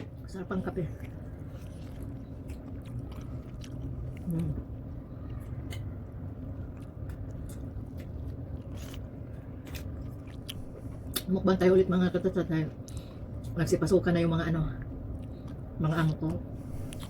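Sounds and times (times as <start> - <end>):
low steady hum: 0.0 - 17.0
chewing with wet mouth clicks: 0.9 - 11.4, 12.8 - 13.6.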